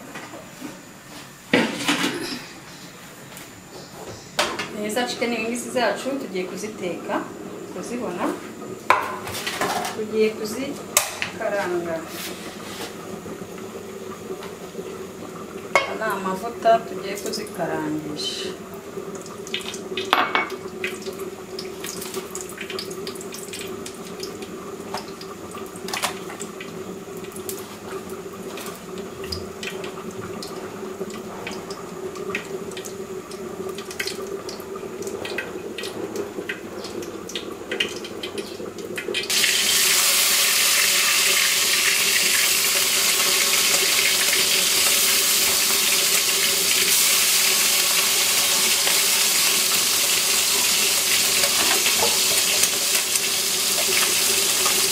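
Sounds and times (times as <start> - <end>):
chicken frying in hot oil: 5.0 - 54.9.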